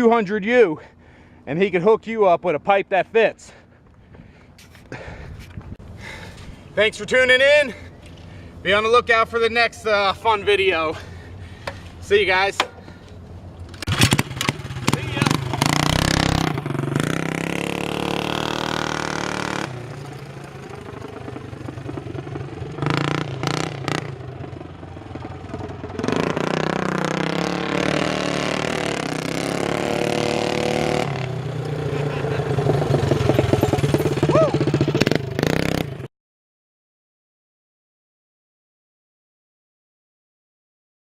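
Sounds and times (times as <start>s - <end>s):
minibike engine running: 30.3s - 35.9s.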